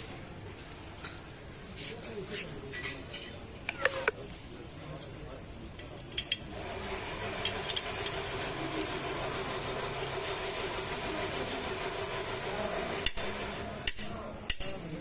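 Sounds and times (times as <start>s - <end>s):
engine running: 6.5s - 13.8s.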